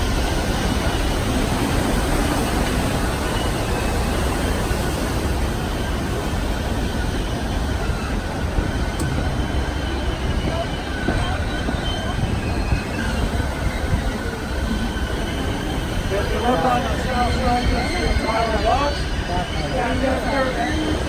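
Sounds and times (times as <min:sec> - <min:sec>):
train car rumbling on rails: 0:00.0 - 0:21.0.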